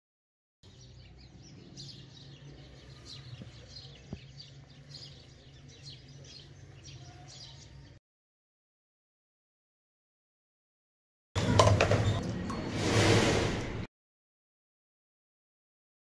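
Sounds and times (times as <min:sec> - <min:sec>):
faint birds chirping: 0:00.6 - 0:08.0.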